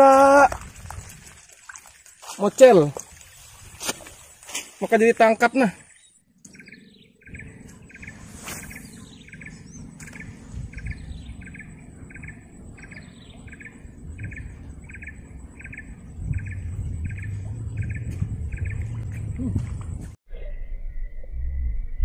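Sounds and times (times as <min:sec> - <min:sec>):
low rumble: 0:06.6 - 0:22.0.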